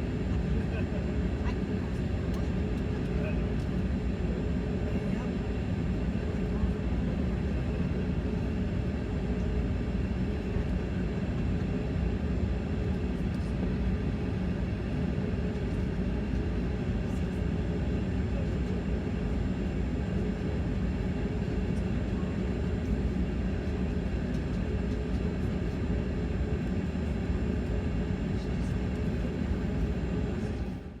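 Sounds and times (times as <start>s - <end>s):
jet engine hum and rumble: 0.0s - 31.0s.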